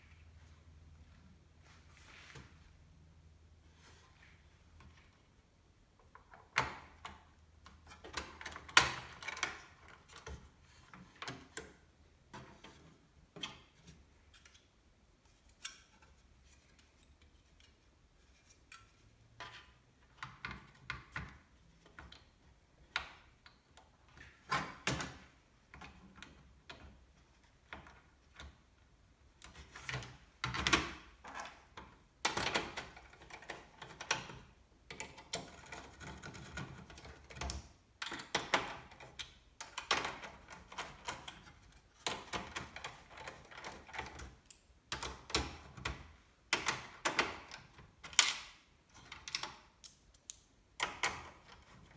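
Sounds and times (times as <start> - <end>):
computer parts clicking and tapping: 29.8 - 51.9.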